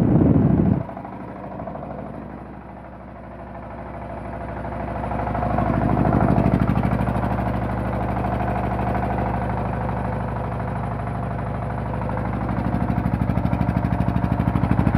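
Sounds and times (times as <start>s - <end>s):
diesel generator thumping: 0.0s - 7.8s.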